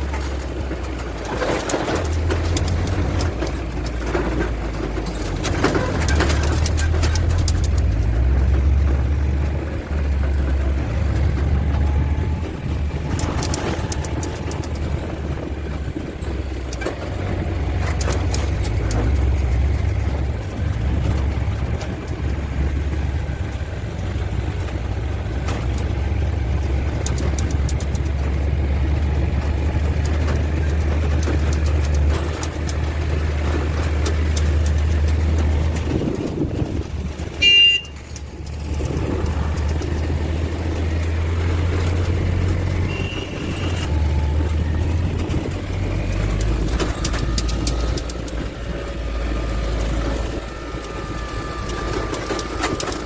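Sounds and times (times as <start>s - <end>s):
motor vehicle low rumble: 0.0s - 53.0s
short horn toot: 37.4s - 38.0s, 42.8s - 43.8s.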